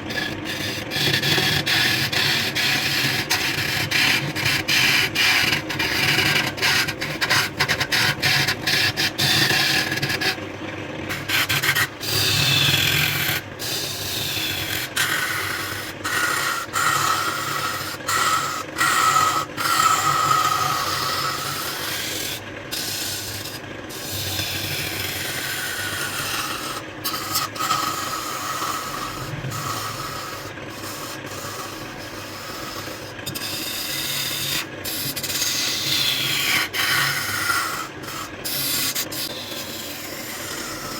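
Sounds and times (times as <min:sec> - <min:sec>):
lathe tool scraping spinning wood: 0:00.0 - 0:40.9.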